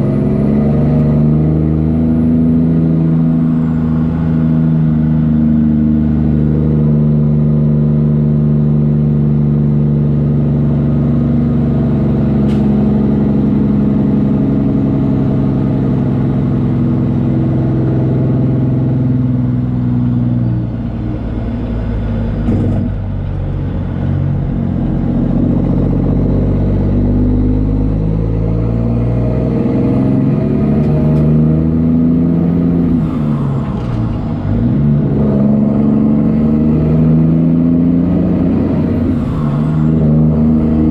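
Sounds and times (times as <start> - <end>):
truck diesel engine running: 0.0 - 28.8.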